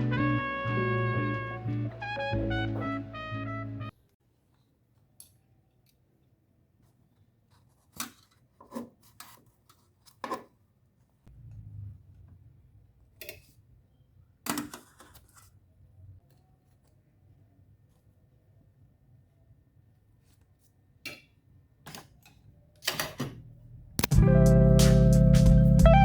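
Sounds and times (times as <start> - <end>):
jazzy brass music: 0.0 - 3.9, 24.0 - 26.0
low hum: 23.8 - 26.0.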